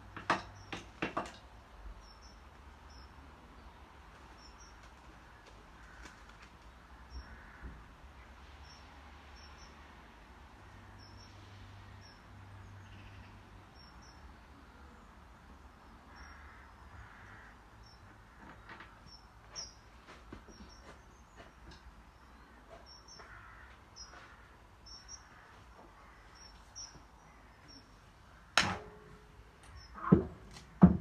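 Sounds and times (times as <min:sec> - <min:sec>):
soft knocks: 0:30.0 - 0:31.0.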